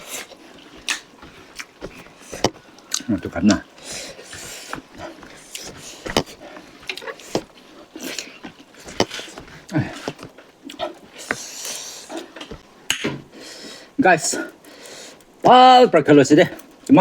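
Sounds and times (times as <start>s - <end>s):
chewing and lip-smacking: 0.0s - 12.7s.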